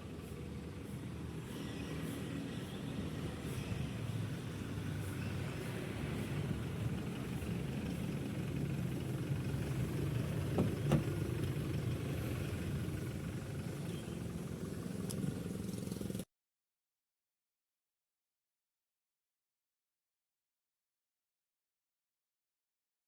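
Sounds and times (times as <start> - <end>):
vehicle engine humming: 0.0 - 16.2.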